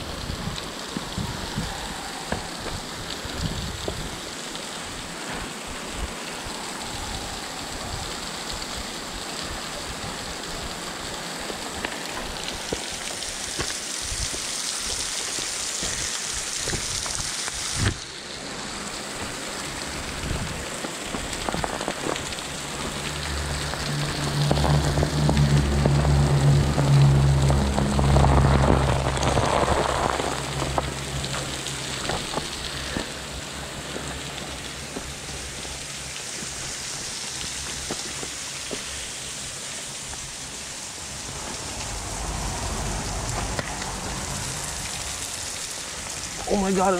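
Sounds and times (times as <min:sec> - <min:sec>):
waterfall splashing: 0:00.0 - 0:46.9
low droning hum: 0:18.6 - 0:46.4.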